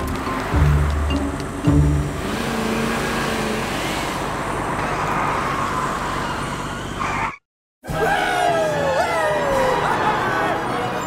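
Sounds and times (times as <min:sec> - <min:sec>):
vehicle engine and road noise: 0:00.0 - 0:07.4.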